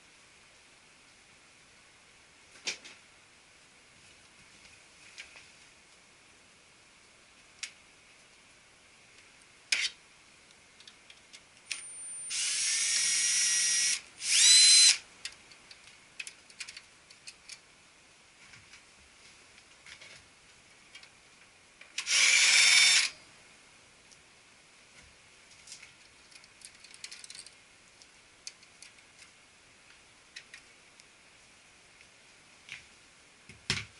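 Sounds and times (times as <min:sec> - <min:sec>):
cordless drill whining: 0:11.7 - 0:15.0, 0:22.0 - 0:23.2
sharp clicks of parts handled: 0:15.2 - 0:17.6, 0:25.7 - 0:29.3.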